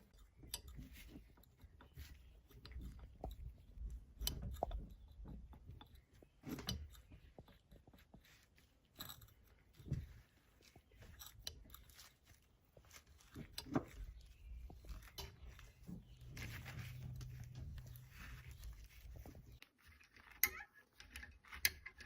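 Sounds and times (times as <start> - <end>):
clicks and knocks on metal parts: 0.0 - 22.0.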